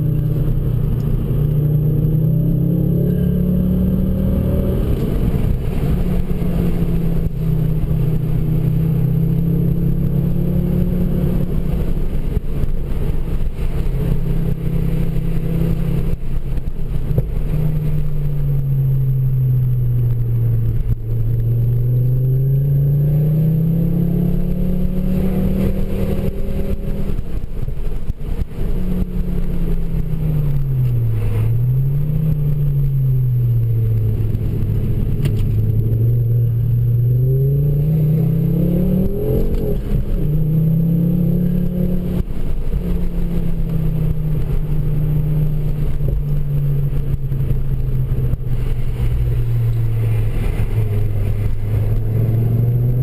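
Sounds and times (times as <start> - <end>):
car engine revving: 0.0 - 53.0
low road rumble: 0.0 - 53.0.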